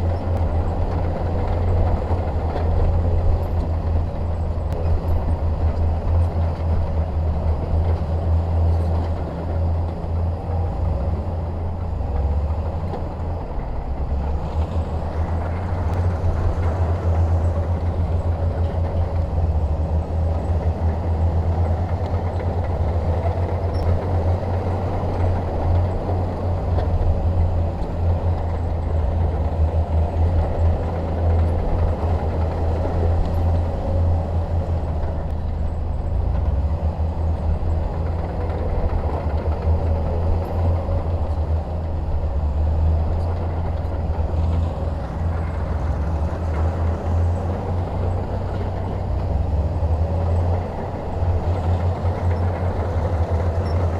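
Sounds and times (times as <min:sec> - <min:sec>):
bulldozer diesel engine rumbling: 0:00.0 - 0:53.9.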